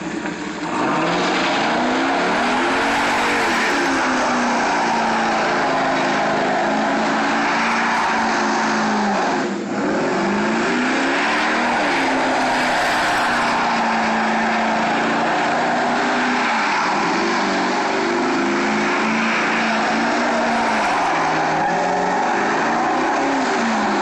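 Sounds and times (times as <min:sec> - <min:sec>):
car engine revving high: 0:00.0 - 0:24.0
tyres screeching: 0:10.9 - 0:17.8.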